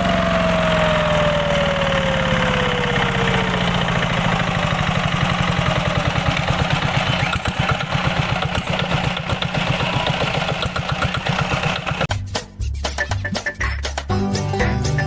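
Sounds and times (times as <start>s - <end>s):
engine idling: 0.0s - 12.1s.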